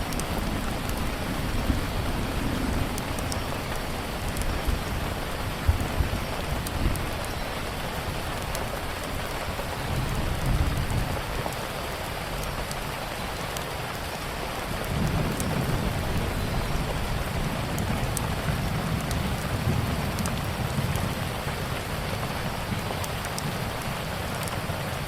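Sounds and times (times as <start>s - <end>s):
thunder rumbling: 0.0s - 7.3s, 14.6s - 25.0s
steady rain: 0.0s - 25.0s
wood fire crackling: 0.0s - 25.0s.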